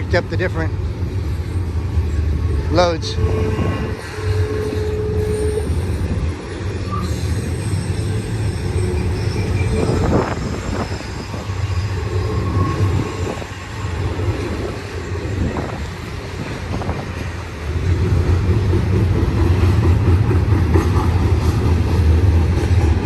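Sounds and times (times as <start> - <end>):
freight train wheels rumbling: 0.0 - 23.0
steel wheel squealing: 1.2 - 16.0.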